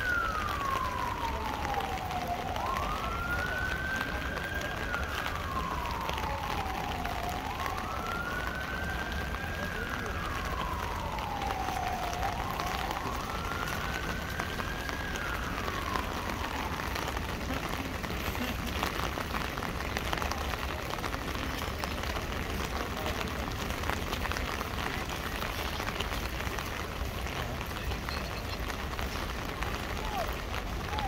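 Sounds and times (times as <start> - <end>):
siren rising and falling: 0.0 - 17.4
rain pattering on an umbrella: 0.0 - 31.0.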